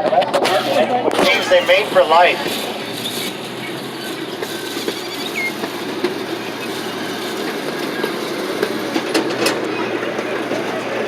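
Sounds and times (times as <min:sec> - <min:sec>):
ride train rumbling: 0:00.0 - 0:11.0
train wheels clicking and knocking: 0:02.9 - 0:11.0.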